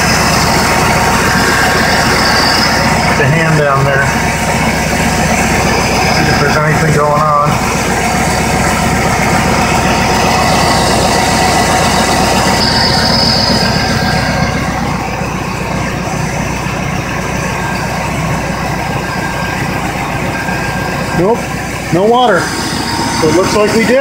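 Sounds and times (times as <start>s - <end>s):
faint high whine: 0.0s - 4.9s, 9.6s - 17.9s, 18.7s - 24.0s
car engine idling: 0.0s - 24.0s.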